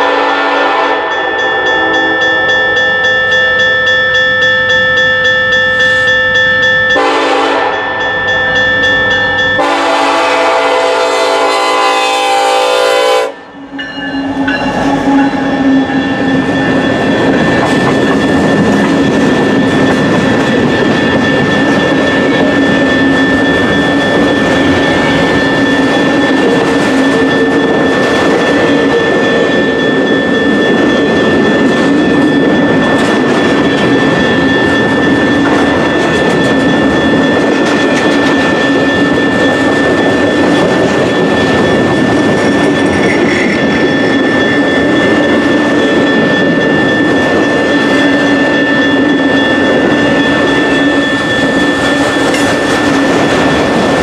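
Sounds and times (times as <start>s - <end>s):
train wheels rumbling on rail: 0.0s - 54.0s
high-pitched whine: 13.4s - 54.0s.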